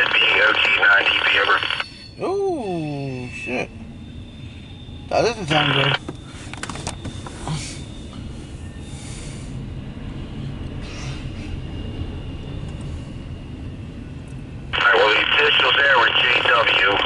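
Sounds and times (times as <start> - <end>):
thin high tone: 1.0 - 6.0.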